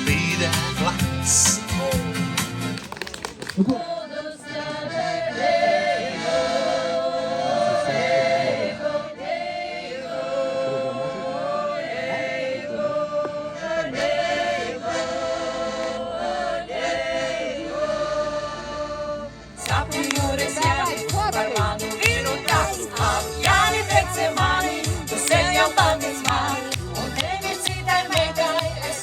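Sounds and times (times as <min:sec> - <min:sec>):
choir singing long notes: 0:03.8 - 0:29.0.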